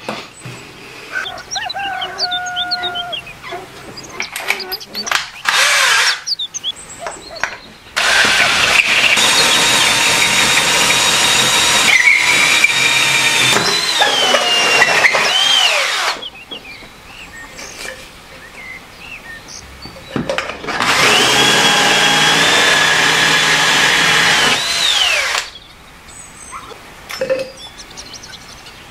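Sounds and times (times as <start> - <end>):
drill hole saw grinding metal: 4.6 - 6.4, 8.0 - 16.3, 20.7 - 25.6.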